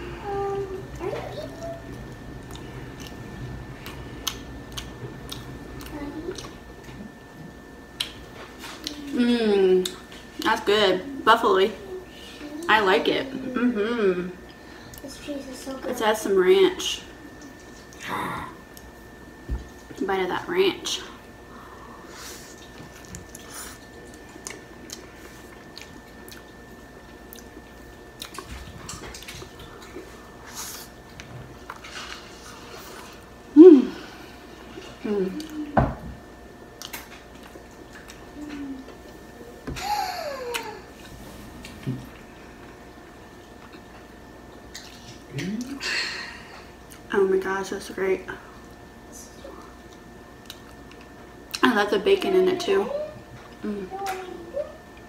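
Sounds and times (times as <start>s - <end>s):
closed-mouth hum: 0.0s - 55.0s
wet chewing and mouth smacks: 3.8s - 6.9s, 22.5s - 26.6s, 27.3s - 30.1s, 36.8s - 38.3s, 43.4s - 45.6s, 49.9s - 51.6s.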